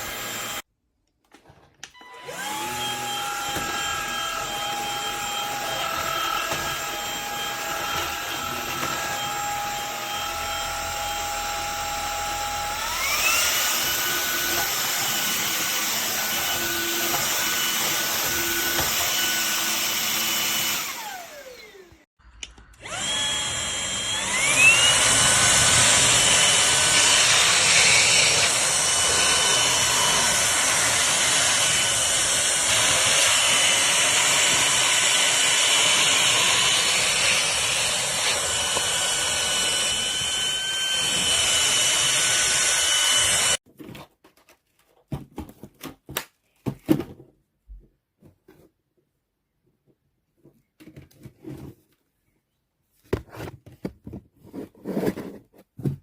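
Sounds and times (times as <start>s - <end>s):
vacuum motor whine: 2.0s - 22.0s, 22.8s - 43.6s.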